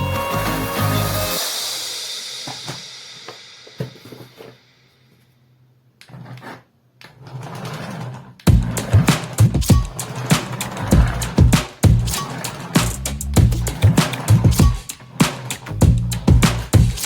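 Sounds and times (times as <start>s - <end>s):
background music: 0.0s - 2.5s.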